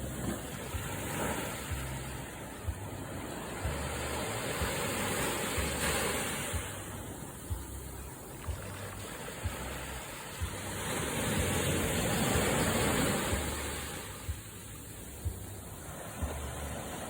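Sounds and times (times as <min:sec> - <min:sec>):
ocean surf breaking on beach: 0:00.0 - 0:17.0
wind thumps on microphone: 0:10.4 - 0:15.6.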